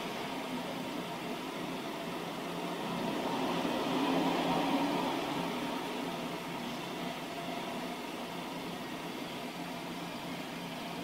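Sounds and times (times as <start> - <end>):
train wheels rumbling on rails: 2.7 - 7.8.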